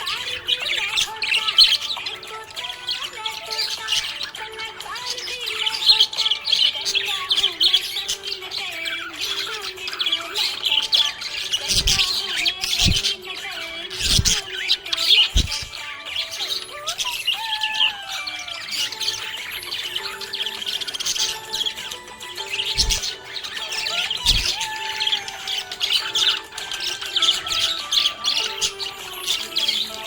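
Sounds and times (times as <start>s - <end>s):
budgerigars chirping: 0.0s - 30.0s.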